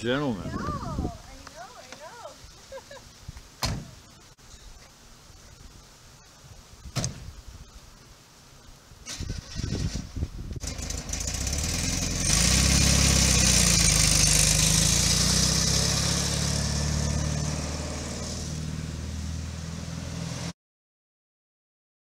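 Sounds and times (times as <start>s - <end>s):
car engine pulling away: 9.1s - 20.5s.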